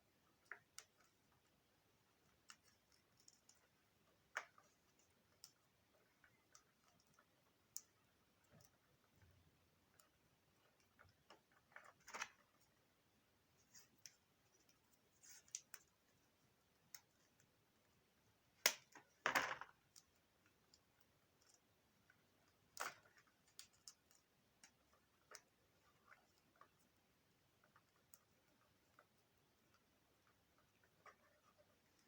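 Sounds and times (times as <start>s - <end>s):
plastic parts clicking and knocking: 18.6s - 20.8s.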